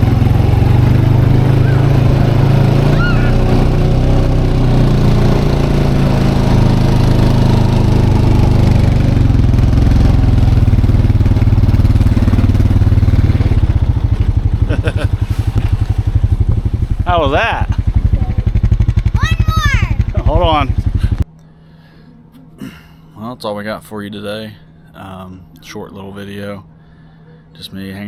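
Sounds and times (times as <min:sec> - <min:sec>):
quad bike engine running: 0:00.0 - 0:21.2.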